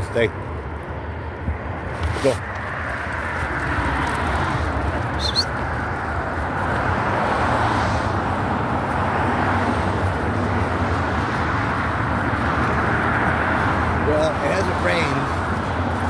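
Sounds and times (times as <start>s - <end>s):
rushing outdoor noise: 0.0s - 16.0s
high chirp: 5.2s - 5.6s.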